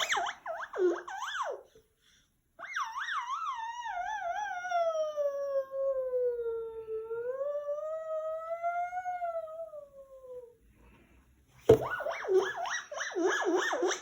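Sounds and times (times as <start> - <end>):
baby imitating a siren: 2.6 - 10.3.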